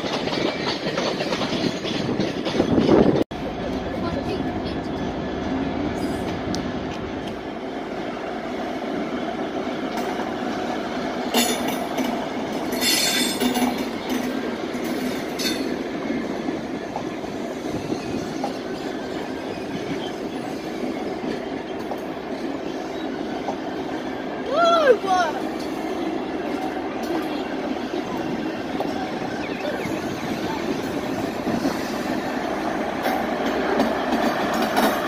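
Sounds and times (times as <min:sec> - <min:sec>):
train wheels running on rails: 0:00.0 - 0:35.0
wheels squealing on rail: 0:11.2 - 0:35.0.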